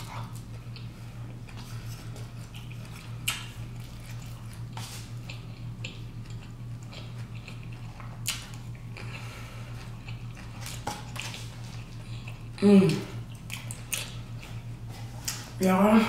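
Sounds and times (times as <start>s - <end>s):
person chewing and lip-smacking: 0.0s - 15.6s
steady low hum: 0.0s - 16.0s.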